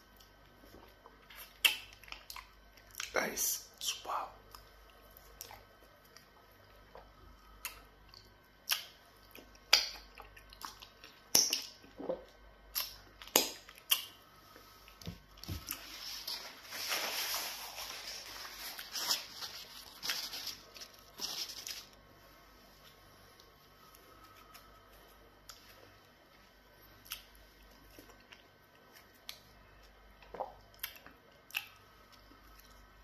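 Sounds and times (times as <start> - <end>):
close chewing with mouth smacks: 0.1 - 3.1, 4.5 - 14.2, 27.0 - 32.8.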